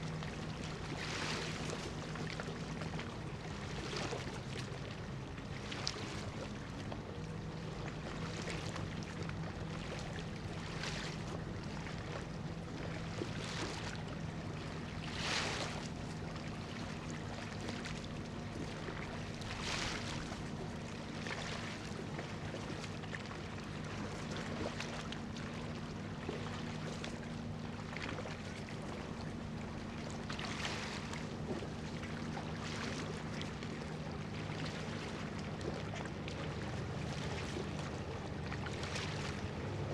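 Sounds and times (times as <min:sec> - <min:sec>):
ship diesel engine drone: 0:00.0 - 0:39.9
small waves washing: 0:00.0 - 0:39.9.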